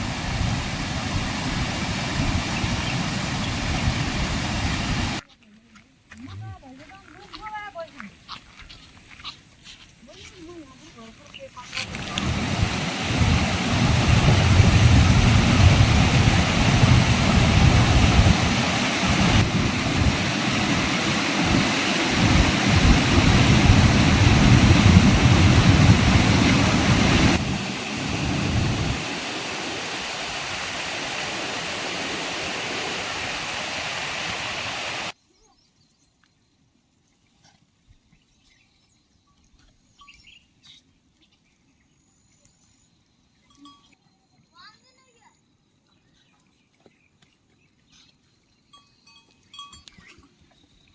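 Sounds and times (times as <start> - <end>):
heavy rain hissing: 0.0 - 5.2, 11.8 - 35.2
wind gusting on microphone: 0.0 - 5.2, 11.7 - 35.1.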